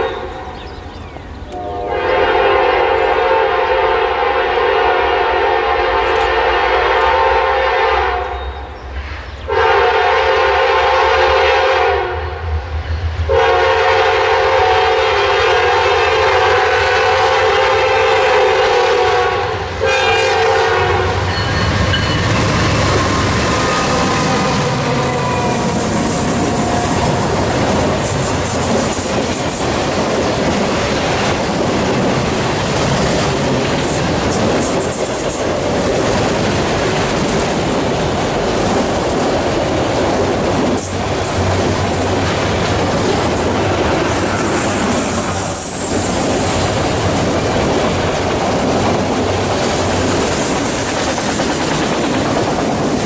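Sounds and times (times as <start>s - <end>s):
locomotive air horn blasts: 1.5s - 8.4s, 9.5s - 12.4s, 13.3s - 28.2s
locomotive rumbling: 12.2s - 53.0s
freight train wheels clattering: 21.1s - 53.0s.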